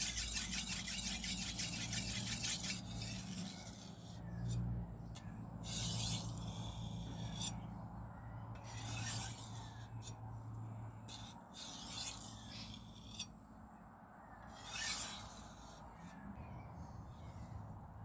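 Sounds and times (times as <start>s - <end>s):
knife scraping on whetstone: 0.0s - 4.6s, 5.7s - 7.7s, 8.6s - 10.2s, 11.1s - 13.3s, 14.5s - 16.2s.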